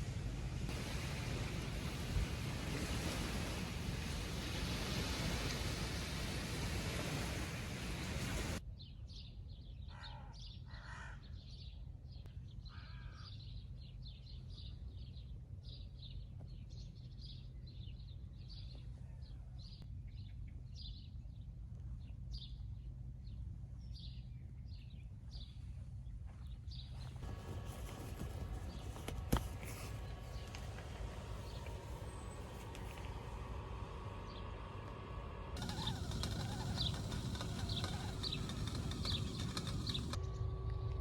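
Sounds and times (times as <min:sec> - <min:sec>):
crow cawing: 0:09.9 - 0:11.2, 0:12.7 - 0:13.3
small birds chirping: 0:26.4 - 0:40.4
low rumble: 0:27.2 - 0:41.0.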